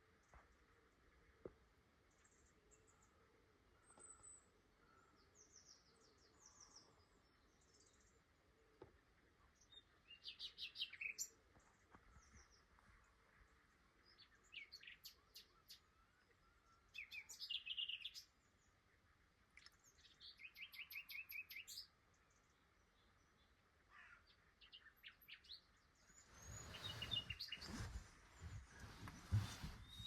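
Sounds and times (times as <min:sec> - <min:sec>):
nightingale singing: 0:09.6 - 0:11.4, 0:14.1 - 0:18.4, 0:19.6 - 0:22.0, 0:24.6 - 0:30.0.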